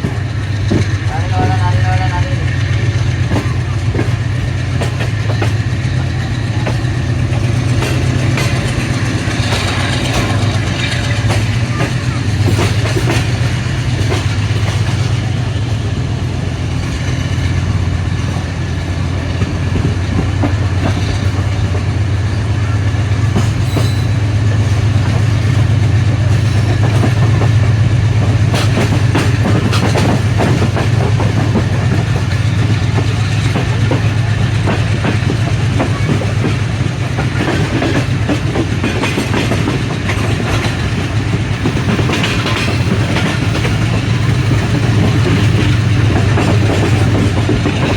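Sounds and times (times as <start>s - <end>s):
diesel locomotive drone: 0.0s - 47.9s
train coaches rumbling: 0.0s - 47.9s
wheels clicking over rail joints: 0.0s - 47.9s.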